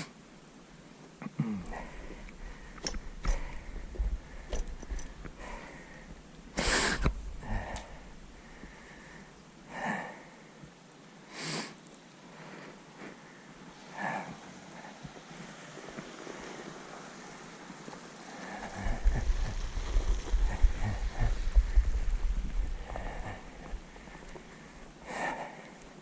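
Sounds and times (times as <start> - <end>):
low rumble: 1.6 - 6.3, 7.0 - 9.1, 18.5 - 24.8
person breathing hard and sniffing: 1.6 - 10.5, 11.3 - 14.9, 18.4 - 25.8.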